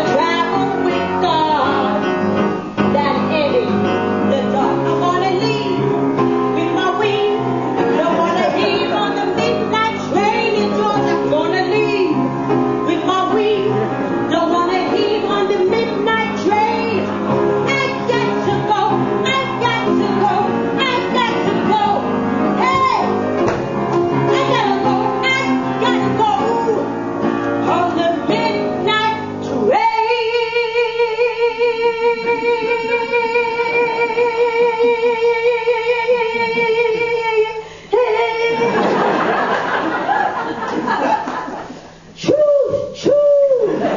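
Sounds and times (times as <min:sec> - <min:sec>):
woman singing: 0:00.0 - 0:02.1, 0:02.8 - 0:05.9, 0:06.6 - 0:22.0, 0:24.1 - 0:26.9, 0:27.6 - 0:38.8
instrumental backing: 0:00.0 - 0:43.9.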